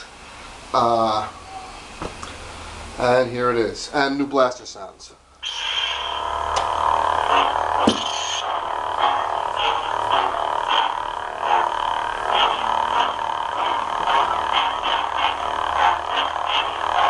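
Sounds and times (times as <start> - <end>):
lightsaber hum: 5.4 - 17.0.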